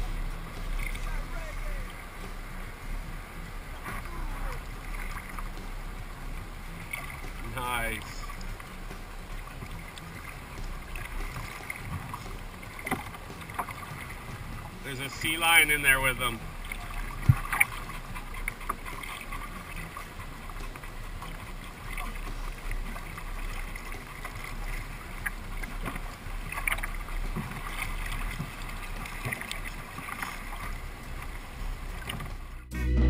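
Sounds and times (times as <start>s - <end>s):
water sloshing and splashing: 0.0s - 32.7s.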